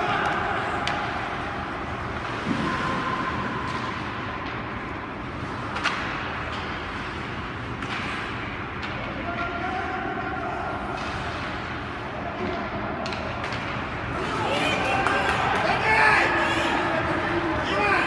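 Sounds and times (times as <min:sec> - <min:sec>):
hockey sticks clicking on puck: 0:00.0 - 0:02.7, 0:03.5 - 0:09.8, 0:10.8 - 0:17.8
arena noise: 0:00.0 - 0:18.0.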